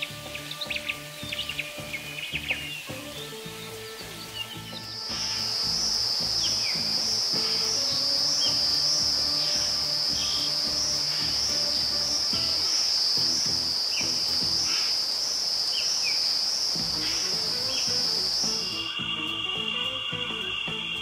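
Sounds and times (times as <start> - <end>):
soft background music: 0.0 - 14.8, 16.8 - 21.0
insect chorus trilling: 0.0 - 21.0
short falling chirps: 17.0 - 21.0.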